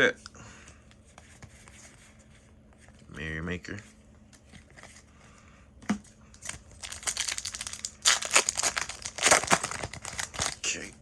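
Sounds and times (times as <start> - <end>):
foil wrapper crinkling and tearing: 6.4 - 10.9.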